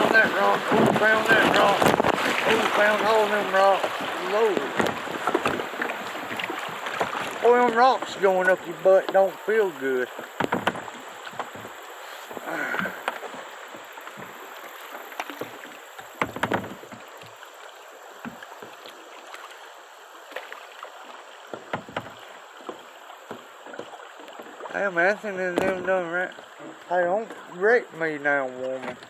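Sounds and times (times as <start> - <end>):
paddle knocking and splashing: 0.0 - 29.0
water rushing around boat: 0.0 - 29.0.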